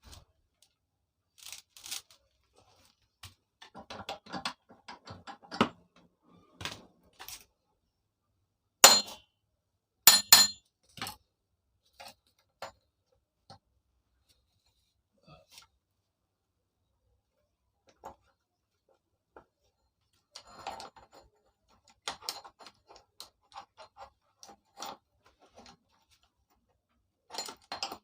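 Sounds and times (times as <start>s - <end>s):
metal tools clinking: 10.1s - 10.6s.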